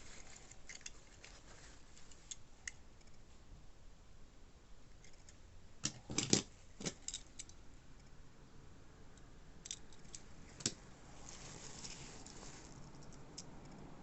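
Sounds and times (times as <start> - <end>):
small objects clicking and rustling: 0.0 - 2.4.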